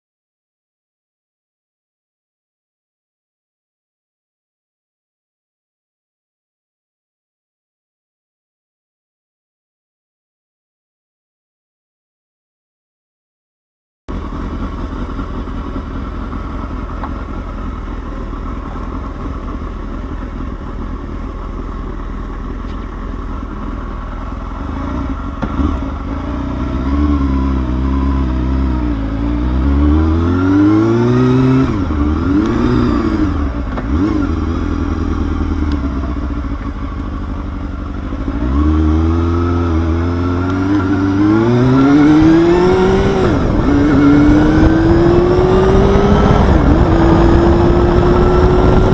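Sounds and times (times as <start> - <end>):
motorcycle engine revving: 14.1 - 48.9.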